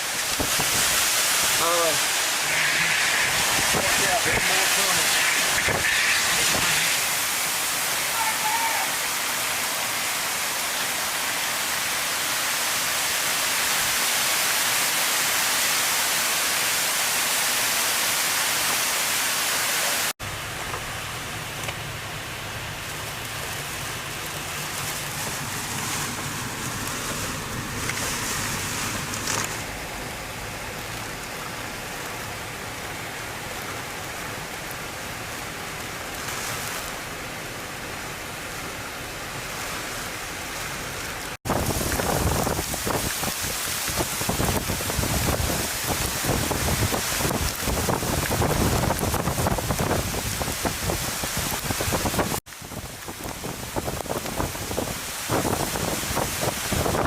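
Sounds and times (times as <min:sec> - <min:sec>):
wind and rain hiss: 0:00.0 - 0:57.0.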